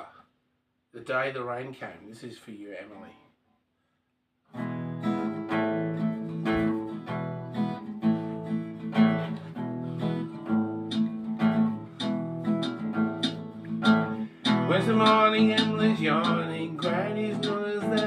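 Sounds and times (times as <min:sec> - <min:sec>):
acoustic guitar strumming chords: 0:04.5 - 0:18.0.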